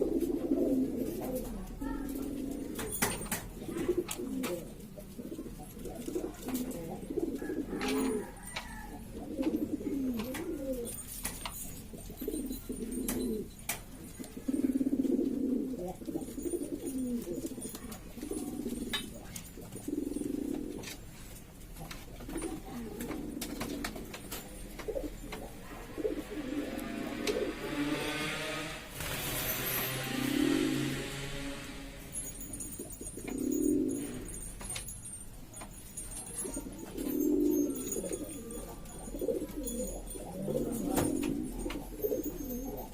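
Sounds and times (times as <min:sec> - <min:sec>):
pigeons cooing: 0:00.0 - 0:34.8, 0:36.0 - 0:42.9.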